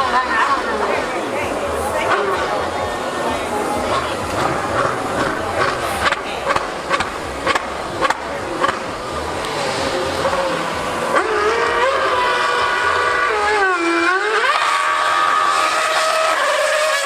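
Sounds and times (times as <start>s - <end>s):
high-revving racing engine: 0.0s - 17.0s
noisy background: 0.0s - 17.0s.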